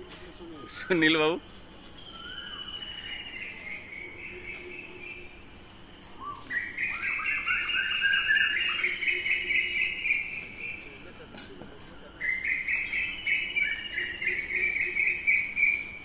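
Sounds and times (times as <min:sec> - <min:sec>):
bird singing high fast trill: 0:06.2 - 0:10.9, 0:12.2 - 0:16.0.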